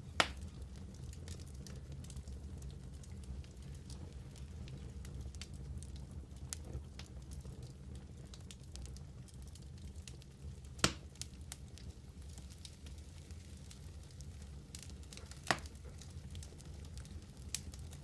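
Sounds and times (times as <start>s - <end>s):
fire crackling and popping: 0.0s - 18.0s
low rumble of flames: 0.0s - 18.0s.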